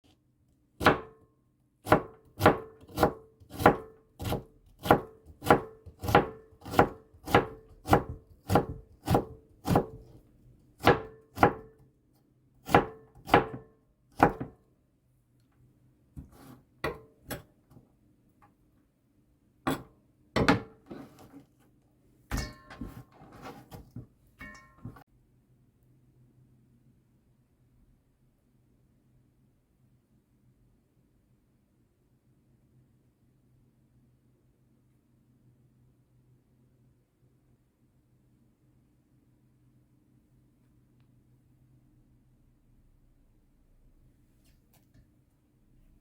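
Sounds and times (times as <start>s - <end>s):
knife chopping vegetables: 0.8s - 1.2s, 1.8s - 10.2s, 10.8s - 11.8s, 12.6s - 14.6s.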